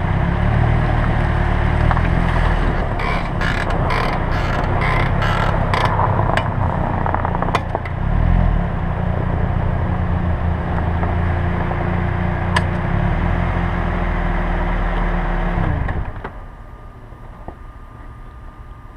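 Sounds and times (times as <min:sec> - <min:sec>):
car engine and road noise: 0:00.0 - 0:18.9
brake creaking: 0:00.8 - 0:08.3.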